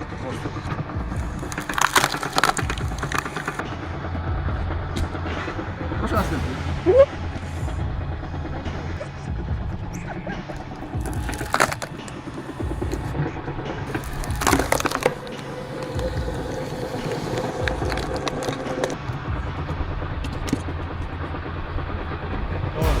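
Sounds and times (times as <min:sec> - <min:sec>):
machine whine: 0:00.0 - 0:23.0
wood-splitting machine droning: 0:00.0 - 0:23.0
log cracking and splintering: 0:01.2 - 0:03.6, 0:11.0 - 0:12.2, 0:13.9 - 0:19.0.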